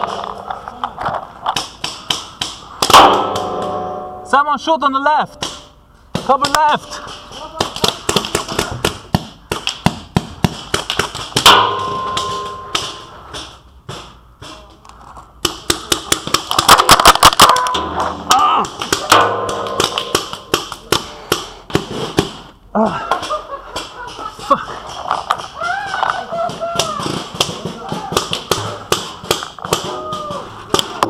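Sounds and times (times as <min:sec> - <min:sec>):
paintball markers firing: 0:23.7 - 0:31.0.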